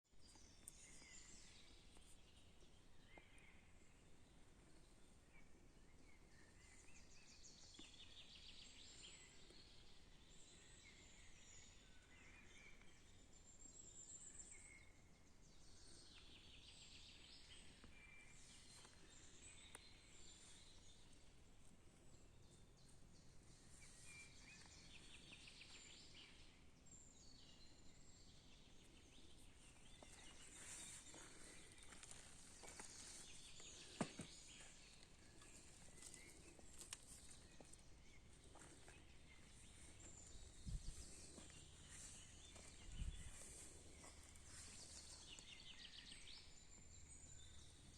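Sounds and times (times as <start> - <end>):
birds chirping and trilling: 22.0 - 47.9.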